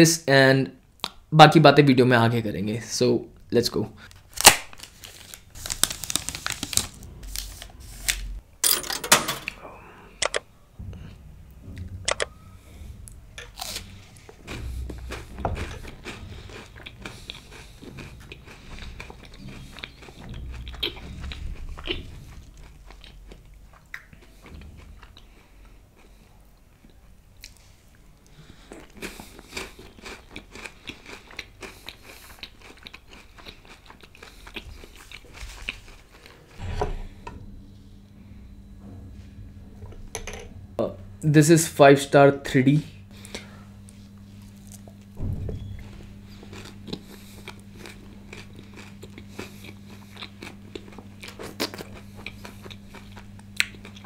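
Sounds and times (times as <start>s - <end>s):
crunchy bites into wafer bar: 4.3s - 6.4s
chewing with small crunches: 13.4s - 36.6s, 45.8s - 54.0s.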